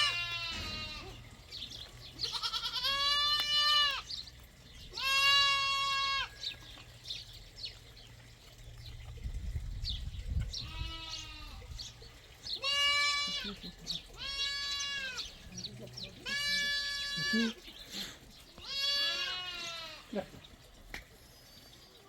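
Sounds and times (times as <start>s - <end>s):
goats bleating: 0.0s - 1.2s, 2.1s - 4.1s, 4.9s - 6.4s, 10.5s - 11.7s, 12.5s - 15.4s, 16.1s - 20.3s.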